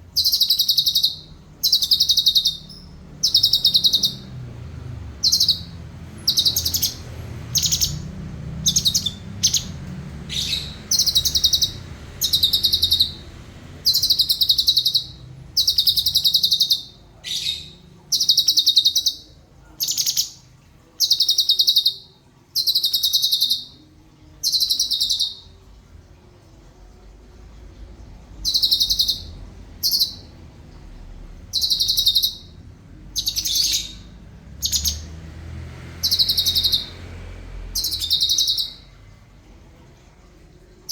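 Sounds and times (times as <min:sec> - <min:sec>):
songbird trilling: 0:00.1 - 0:04.4, 0:05.1 - 0:20.4, 0:21.0 - 0:23.8, 0:24.4 - 0:25.5, 0:28.4 - 0:30.3, 0:31.5 - 0:32.6, 0:33.2 - 0:35.1, 0:36.0 - 0:37.0, 0:37.8 - 0:38.9.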